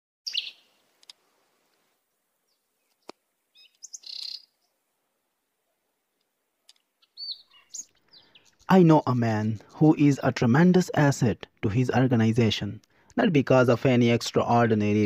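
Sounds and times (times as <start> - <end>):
high-pitched bird chirps: 0.3 - 0.7, 3.5 - 4.6, 7.0 - 8.7.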